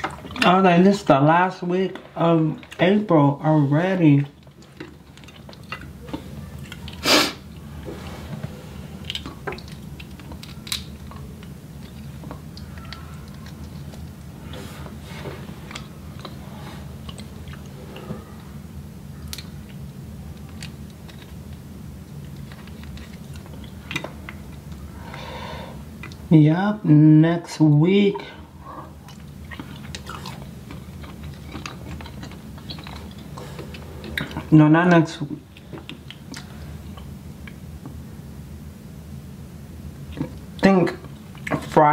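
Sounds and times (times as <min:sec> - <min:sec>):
person chewing: 0:00.0 - 0:00.6, 0:04.2 - 0:26.3, 0:28.2 - 0:34.5, 0:35.4 - 0:38.0, 0:40.0 - 0:41.8
steady low hum: 0:00.0 - 0:41.9.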